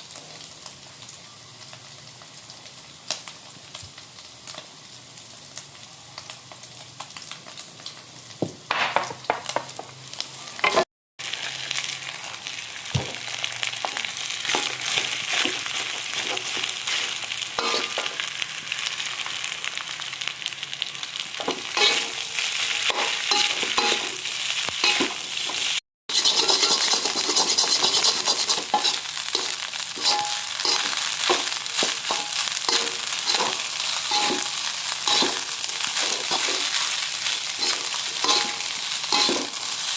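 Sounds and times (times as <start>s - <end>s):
fried rice sizzling in a wok: 0.0s - 39.9s
spatula scraping a pan: 14.5s - 18.1s, 21.8s - 24.0s, 24.8s - 39.9s.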